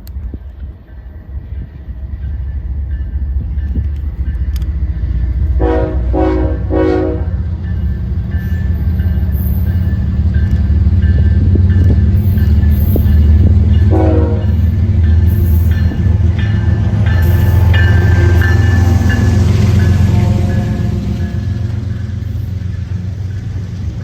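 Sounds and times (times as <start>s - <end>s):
train engine rumble: 0.0s - 24.0s
train horn blasts: 5.5s - 7.5s, 13.8s - 14.7s, 15.3s - 22.0s.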